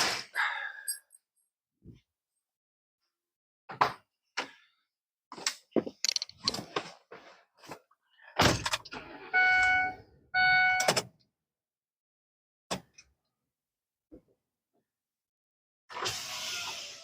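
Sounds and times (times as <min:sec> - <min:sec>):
scattered clicks and knocks: 0:05.8 - 0:06.6.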